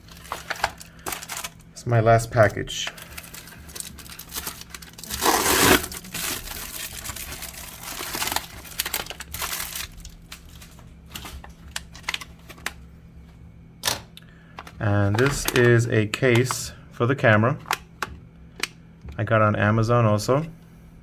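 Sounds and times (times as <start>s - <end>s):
packaging crinkling and tearing: 0.0s - 1.7s, 2.3s - 12.8s, 14.6s - 16.6s.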